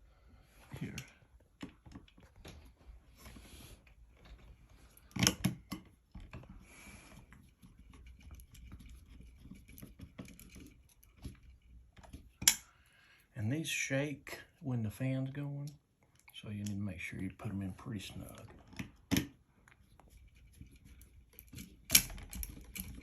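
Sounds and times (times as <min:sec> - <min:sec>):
screws and metal hardware rattling: 0:07.1 - 0:12.7, 0:20.2 - 0:23.0.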